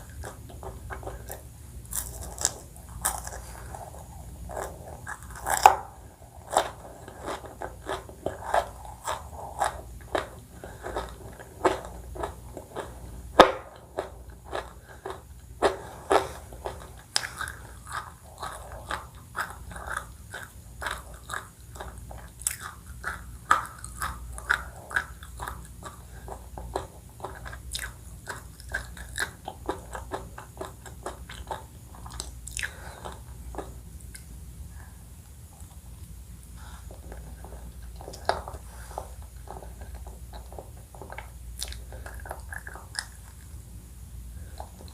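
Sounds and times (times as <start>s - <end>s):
crunchy chewing and biting: 0.0s - 34.2s.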